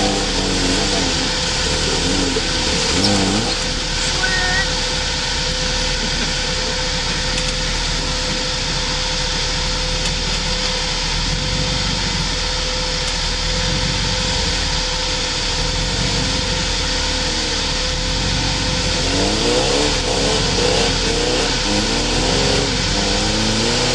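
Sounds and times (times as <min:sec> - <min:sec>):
vehicle engine running steadily: 0:00.0 - 0:23.9.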